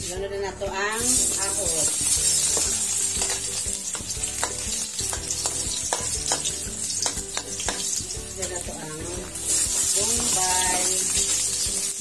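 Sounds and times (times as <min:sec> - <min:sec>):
garlic sizzling in hot oil: 0:00.7 - 0:12.0
metal spatula scraping a wok: 0:01.1 - 0:08.0.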